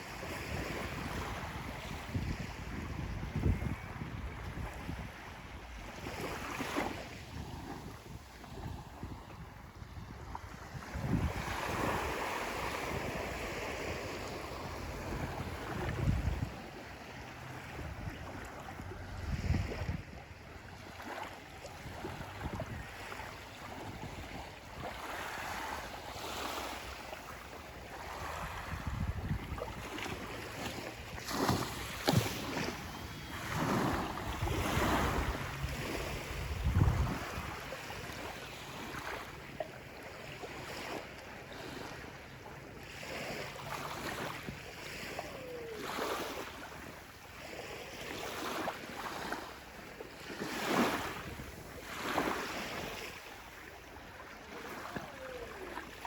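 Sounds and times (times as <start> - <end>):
wind gusting on microphone: 0.0 - 20.8, 21.7 - 39.0
small waves breaking on sand: 0.0 - 56.0.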